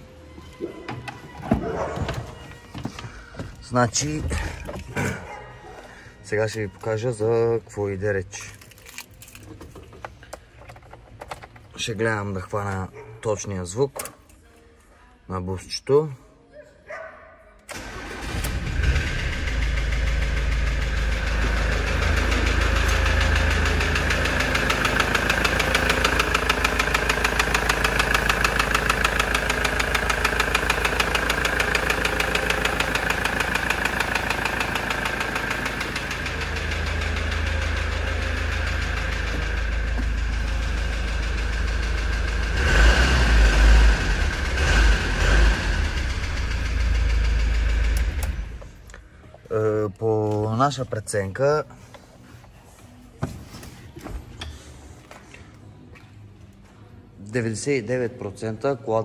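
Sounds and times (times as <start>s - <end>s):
diesel engine knocking: 19.0s - 48.2s.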